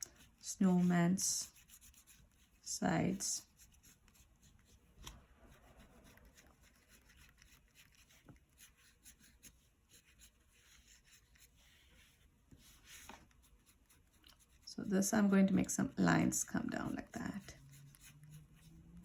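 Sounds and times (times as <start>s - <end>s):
colouring strokes on paper: 0.0s - 19.0s.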